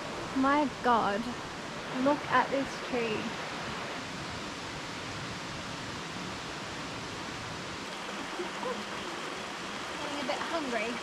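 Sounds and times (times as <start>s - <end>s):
wet rainforest ambience hiss: 0.0s - 11.0s.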